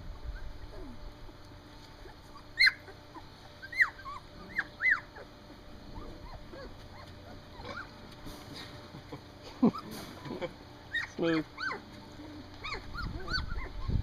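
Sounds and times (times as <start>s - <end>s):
puppies crying: 2.0s - 8.2s, 9.6s - 14.0s.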